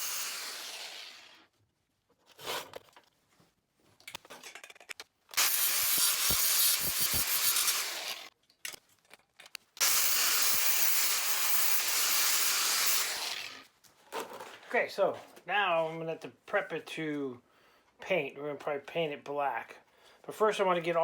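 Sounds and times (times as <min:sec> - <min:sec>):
pressurised spray hissing: 0:05.4 - 0:07.8.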